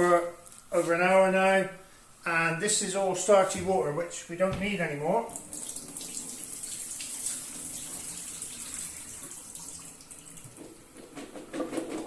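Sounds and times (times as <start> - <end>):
water splashing into a sink: 5.4 - 10.8.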